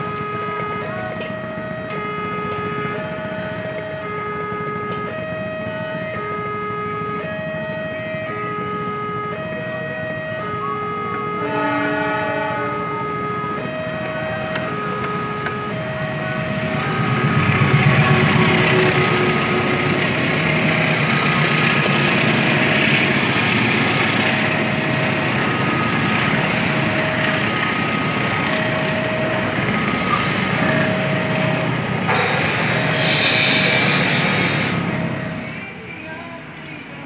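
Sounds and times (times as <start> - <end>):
crossing signal two-tone alarm: 0.0 - 35.6
train rumbling on rails: 0.0 - 37.0.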